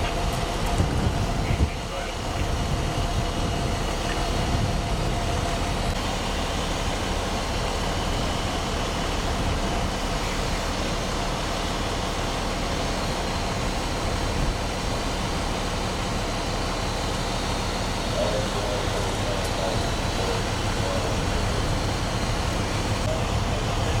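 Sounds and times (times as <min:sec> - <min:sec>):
strong wind on microphone: 0:00.0 - 0:06.0.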